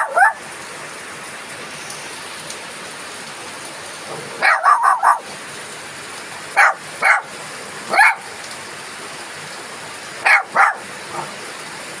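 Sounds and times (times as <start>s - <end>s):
dog barking: 0.0s - 0.4s, 4.4s - 5.3s, 6.6s - 7.3s, 7.9s - 8.3s, 10.2s - 11.3s
steady rain falling: 0.0s - 12.0s.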